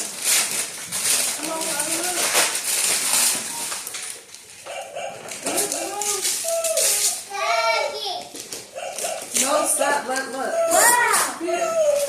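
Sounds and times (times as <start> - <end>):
wrapping paper rustling and tearing: 0.0 - 12.0
high-pitched whining vocal sounds: 10.4 - 12.0.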